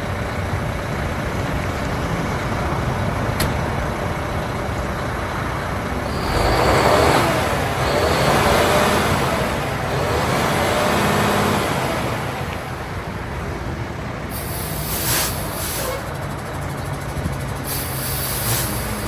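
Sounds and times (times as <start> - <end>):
diesel engine running: 0.0 - 19.0
compressed air hissing: 14.3 - 19.0.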